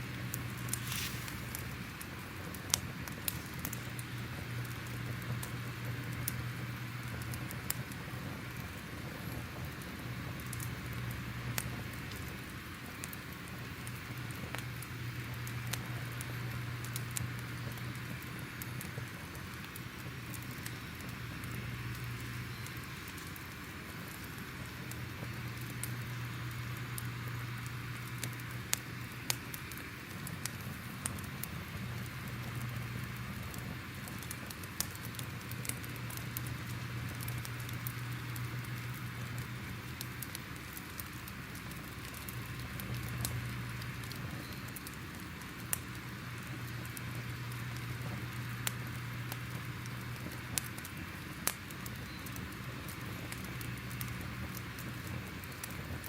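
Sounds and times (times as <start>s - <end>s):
fire popping and crackling: 0.0s - 56.0s
fire rumble and hiss: 0.0s - 56.0s.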